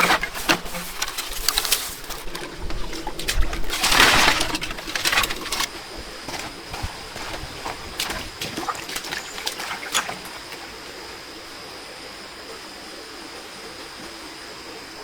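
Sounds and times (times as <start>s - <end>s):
water splashes: 0.0s - 12.0s
running water: 0.0s - 15.0s.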